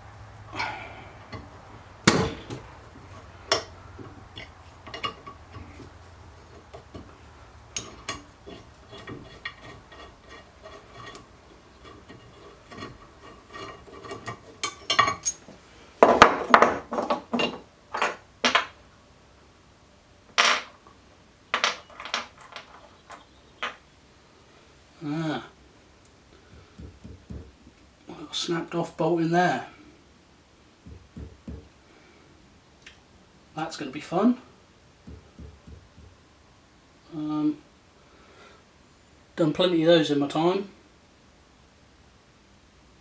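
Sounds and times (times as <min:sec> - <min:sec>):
metal tools clinking and knocking: 0:01.3 - 0:18.8, 0:21.6 - 0:23.8.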